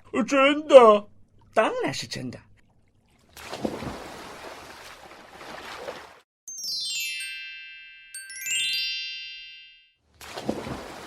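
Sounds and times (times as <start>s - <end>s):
sparkling chime runs: 6.5s - 9.9s.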